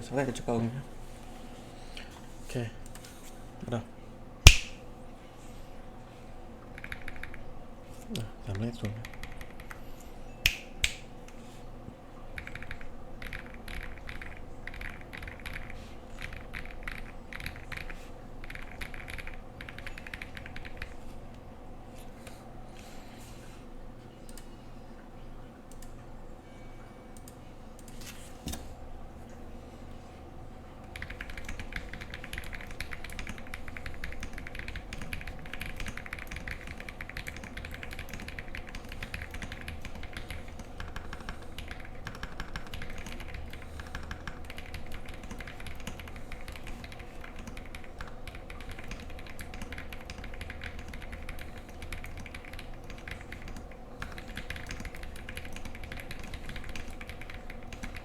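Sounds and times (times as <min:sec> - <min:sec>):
typing on mechanical keyboard: 0:06.7 - 0:07.5, 0:08.6 - 0:09.9, 0:12.4 - 0:21.1, 0:30.8 - 0:58.0.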